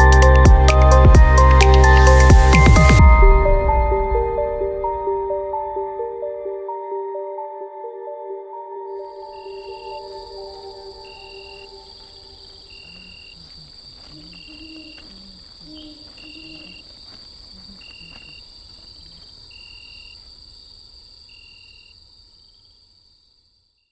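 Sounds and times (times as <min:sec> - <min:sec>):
crickets chirping: 0:08.9 - 0:23.9.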